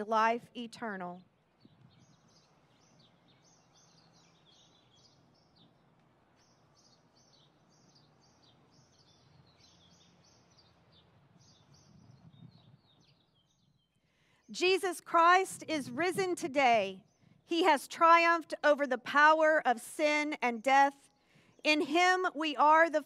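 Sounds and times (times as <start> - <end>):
low background noise: 0.0 - 23.0
small birds chirping: 1.1 - 14.8, 17.0 - 17.6.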